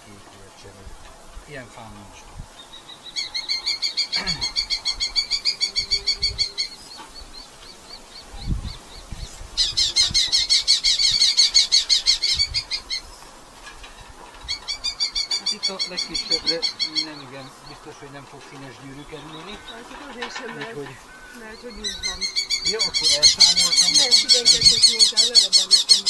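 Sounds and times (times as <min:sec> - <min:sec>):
falcons calling: 0:00.0 - 0:26.0.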